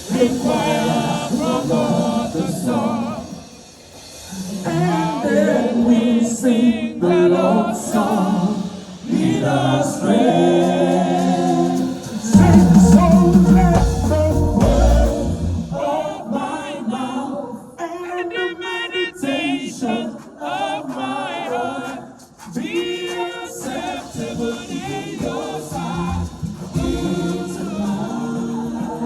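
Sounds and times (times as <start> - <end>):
music with voices singing: 0.0 - 29.0
heavy bass: 12.3 - 15.8, 26.0 - 27.2.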